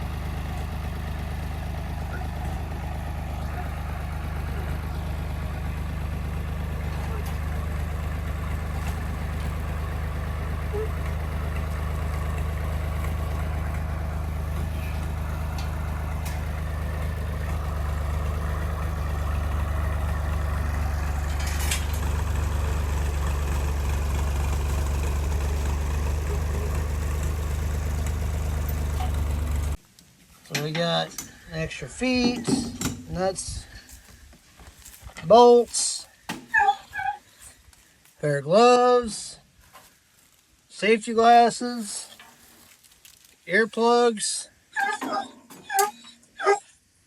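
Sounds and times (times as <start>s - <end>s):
engine humming: 0.0s - 29.9s.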